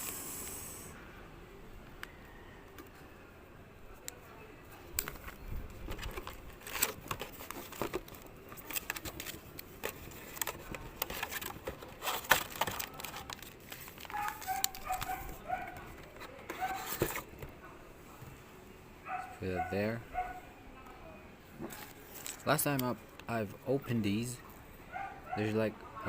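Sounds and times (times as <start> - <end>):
clicks and crackles: 4.9 - 17.4
foil packs crinkling: 5.0 - 17.3, 21.8 - 22.9.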